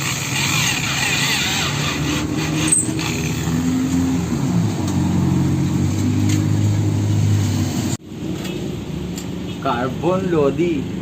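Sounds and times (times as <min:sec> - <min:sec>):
power tool cutting metal: 0:00.0 - 0:04.2.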